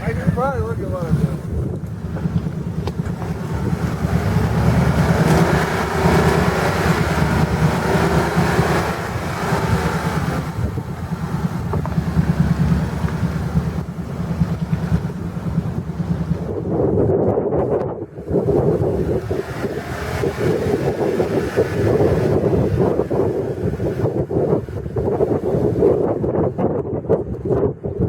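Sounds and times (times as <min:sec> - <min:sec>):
truck engine running under load: 0:00.0 - 0:16.8.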